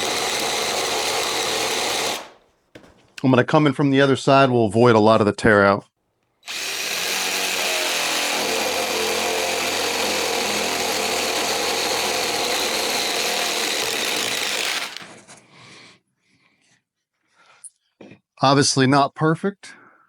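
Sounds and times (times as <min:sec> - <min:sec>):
drill boring through wood: 0:00.0 - 0:03.0, 0:06.4 - 0:15.2.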